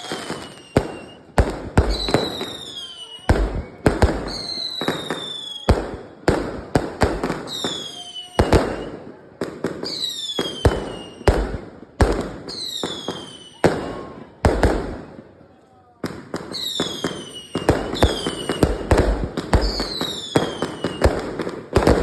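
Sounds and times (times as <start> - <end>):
falling firework whistle: 0.0 - 6.3, 7.1 - 9.2, 9.8 - 11.5, 12.5 - 14.6, 16.5 - 22.0
fireworks bangs: 0.0 - 15.3, 16.0 - 22.0.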